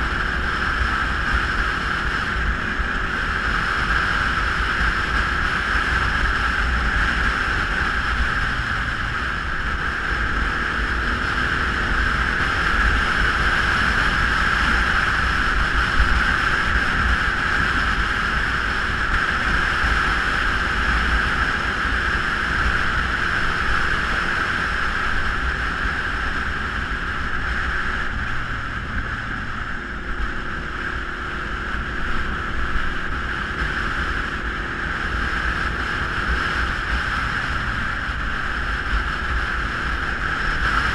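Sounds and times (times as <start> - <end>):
motorcycle engine rumble: 0.0 - 40.9
wind rushing over microphone: 0.0 - 40.9.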